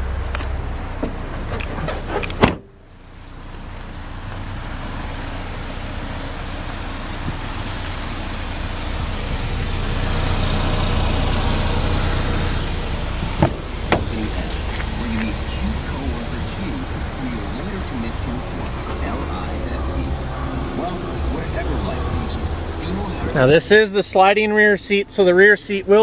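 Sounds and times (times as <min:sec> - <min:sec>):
car liftgate slamming: 0:01.9 - 0:02.7, 0:13.2 - 0:14.1.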